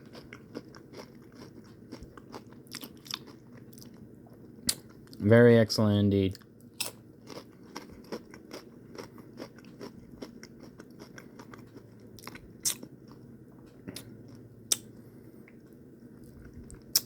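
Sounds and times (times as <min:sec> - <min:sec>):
person chewing crunchy chips: 0:00.0 - 0:05.2, 0:06.3 - 0:15.6.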